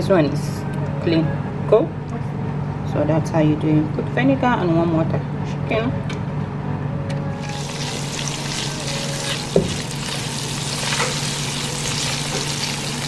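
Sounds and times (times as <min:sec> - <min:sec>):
onions sizzling in hot oil: 0:07.4 - 0:13.0.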